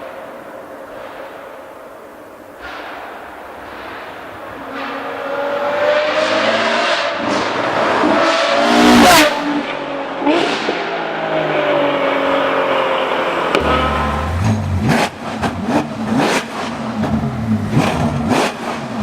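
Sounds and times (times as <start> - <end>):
sports car engine accelerating: 5.2 - 19.0.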